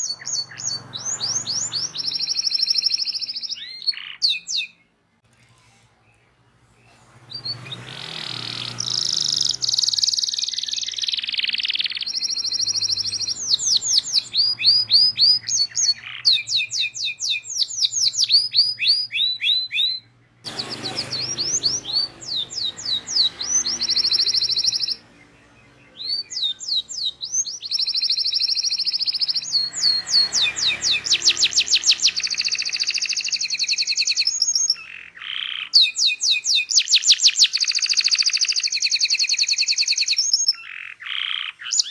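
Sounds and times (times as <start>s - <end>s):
canary singing trills and chirps: 0.0s - 5.2s, 6.0s - 41.9s.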